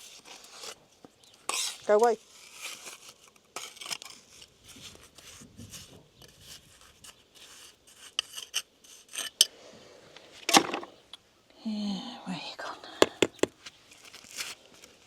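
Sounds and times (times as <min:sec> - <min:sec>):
trowel scraping mortar: 0:00.0 - 0:00.8, 0:01.4 - 0:09.5
stone clicking on stone: 0:13.0 - 0:13.5.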